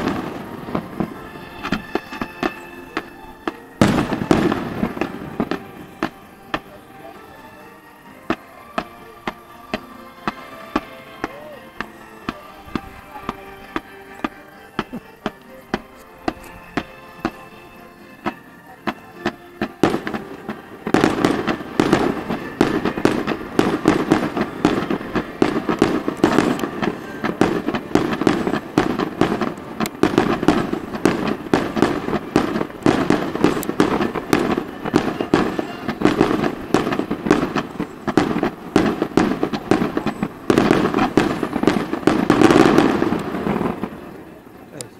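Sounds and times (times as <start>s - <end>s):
fireworks bangs and crackles: 0.0s - 44.9s.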